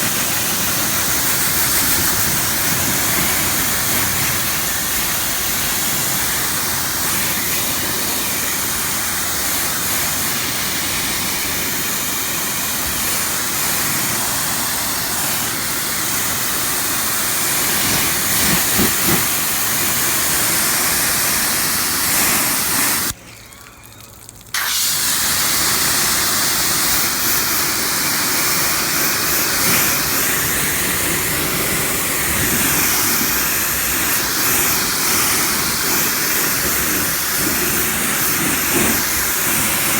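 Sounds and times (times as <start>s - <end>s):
pressure washer spraying water: 0.0s - 23.2s, 24.6s - 39.9s.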